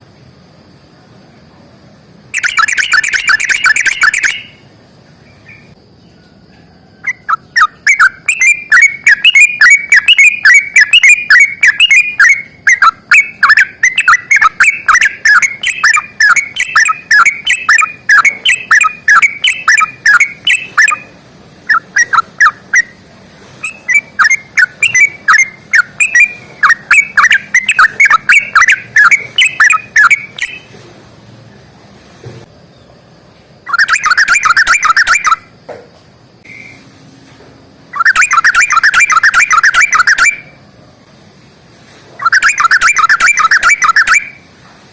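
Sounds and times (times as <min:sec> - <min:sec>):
bird singing chattering song: 0:02.3 - 0:06.2, 0:07.0 - 0:23.0, 0:23.6 - 0:30.8, 0:33.6 - 0:35.5, 0:38.0 - 0:40.5, 0:42.2 - 0:44.4.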